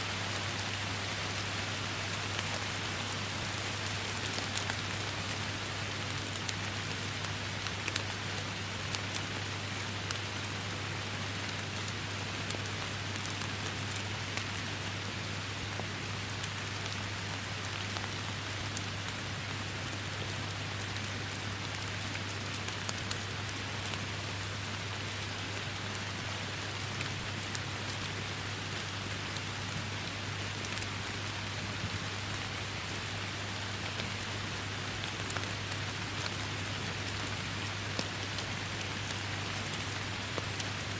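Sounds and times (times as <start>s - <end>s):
rain hissing through forest: 0.0s - 40.9s
drops ticking on leaves: 0.1s - 15.5s, 25.2s - 40.9s.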